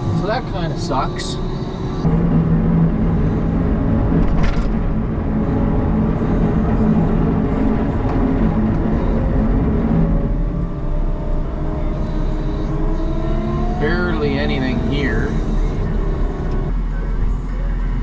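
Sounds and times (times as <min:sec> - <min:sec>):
diesel engine humming: 0:00.0 - 0:18.0.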